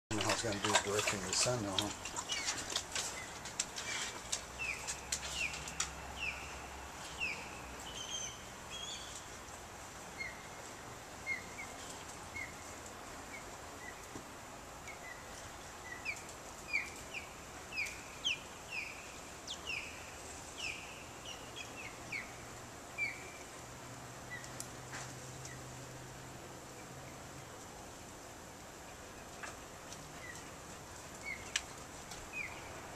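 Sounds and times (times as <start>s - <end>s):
bird chirping: 0.1s - 9.4s, 10.1s - 14.1s, 14.8s - 23.5s, 31.2s - 32.9s.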